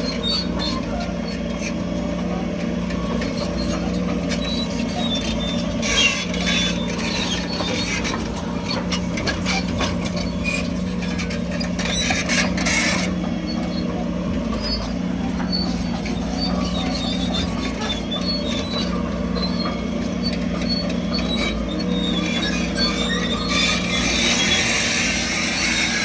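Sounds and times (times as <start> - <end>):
diesel machinery running: 0.0 - 26.0
metallic clanking and squeaking: 0.0 - 26.0.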